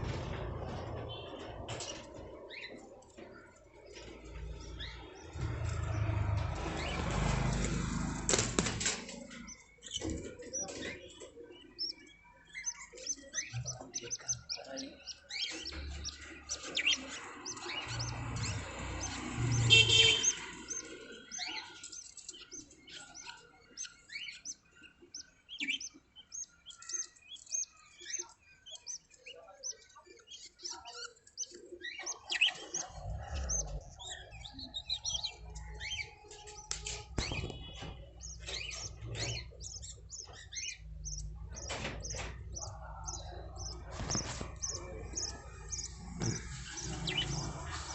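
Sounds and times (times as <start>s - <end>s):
budgie chicks chirping: 0.0s - 47.9s
low rumble: 4.7s - 8.3s.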